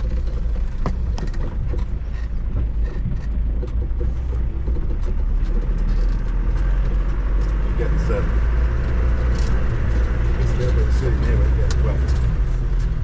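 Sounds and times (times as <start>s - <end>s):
car body knocks and rattles: 0.0s - 6.0s
car engine rumble: 0.0s - 13.0s.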